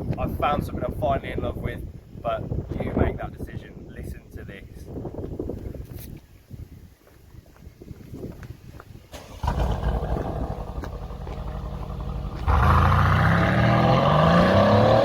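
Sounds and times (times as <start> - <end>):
car engine revving: 9.2 - 15.0.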